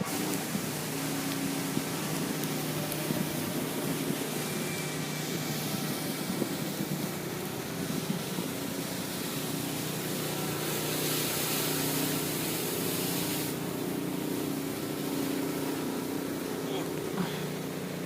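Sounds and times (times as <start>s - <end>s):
traffic engine hum: 0.0s - 18.0s
tyres hissing on snow: 0.0s - 18.0s.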